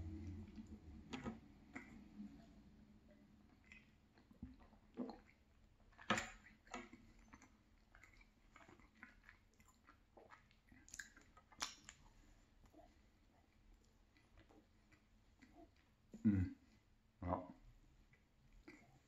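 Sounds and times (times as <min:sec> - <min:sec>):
chewing soft cake: 0:00.0 - 0:19.0
wet mouth clicks and smacks: 0:03.6 - 0:12.1.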